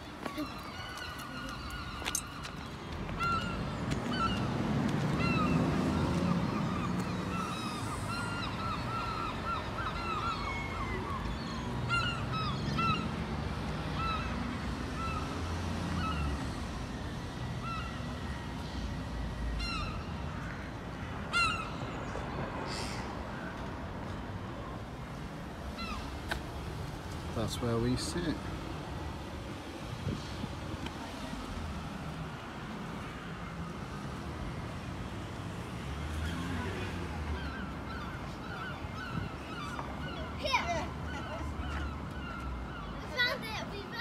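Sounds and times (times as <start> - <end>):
birds calling harshly: 0.0 - 16.6, 19.5 - 23.5, 25.7 - 26.3, 36.1 - 44.0.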